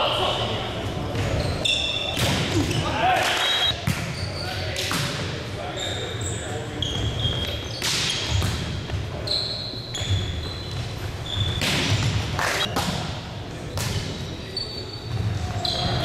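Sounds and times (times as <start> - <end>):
players calling out: 1.4 - 3.8
ball hit and bouncing: 2.2 - 2.8
short high squeaks: 3.3 - 4.5.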